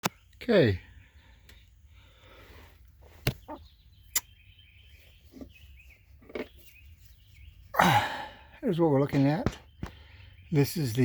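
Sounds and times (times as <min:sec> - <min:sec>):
faint high bird chirps: 0:03.3 - 0:08.0.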